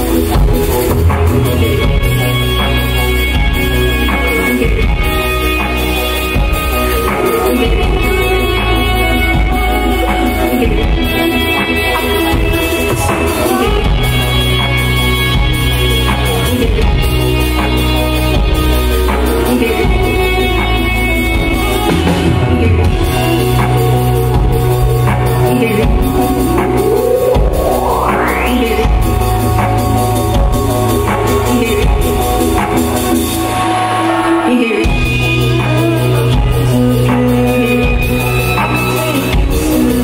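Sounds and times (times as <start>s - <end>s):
electronic band music: 0.0s - 40.0s
rising synth sweep: 26.1s - 31.2s.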